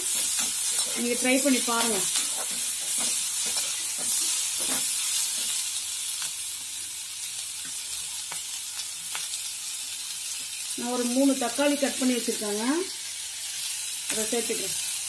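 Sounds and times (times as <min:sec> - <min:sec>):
spoon stirring and knocking pan: 0:00.0 - 0:05.6
onions sizzling in hot oil: 0:00.0 - 0:15.0.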